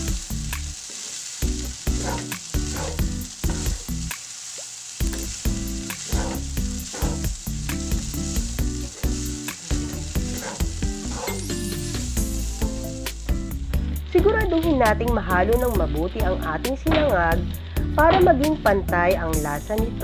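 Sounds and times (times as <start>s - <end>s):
rice sizzling in frying pan: 0.0s - 20.0s
spatula stirring in pan: 1.9s - 4.1s, 5.2s - 11.4s.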